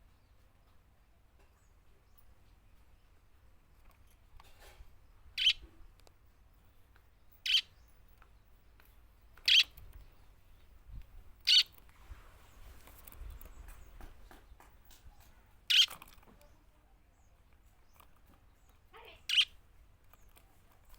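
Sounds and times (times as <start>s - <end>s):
budgerigar calls: 5.4s - 5.6s, 7.4s - 7.7s, 9.5s - 9.7s, 11.4s - 11.7s, 15.7s - 15.9s, 19.0s - 19.6s.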